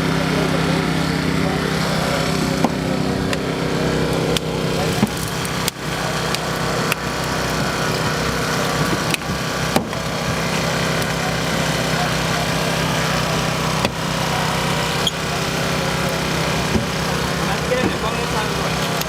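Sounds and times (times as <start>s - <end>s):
small engine running: 0.0s - 19.0s
sharp knocks and clanks: 2.4s - 3.5s, 4.3s - 11.2s, 13.8s - 14.1s, 16.6s - 19.0s.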